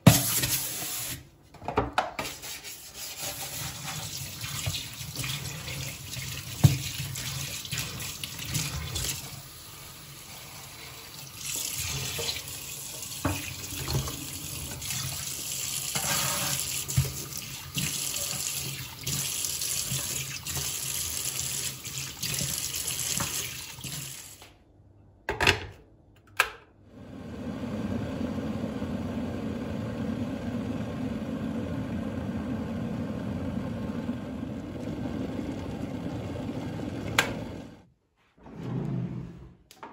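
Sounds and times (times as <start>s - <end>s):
water running from sink tap: 3.3s - 24.4s.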